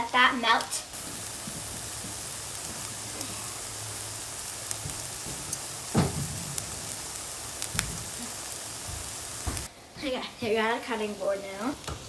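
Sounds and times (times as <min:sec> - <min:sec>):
eggs sizzling in a frying pan: 0:00.0 - 0:12.0
loud bump: 0:04.8 - 0:09.7.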